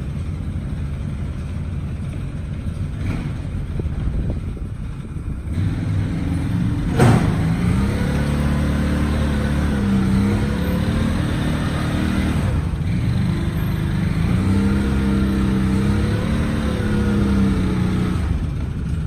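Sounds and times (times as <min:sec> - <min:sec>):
atv engine under load: 0:00.0 - 0:19.0
sharp bang: 0:06.9 - 0:07.7.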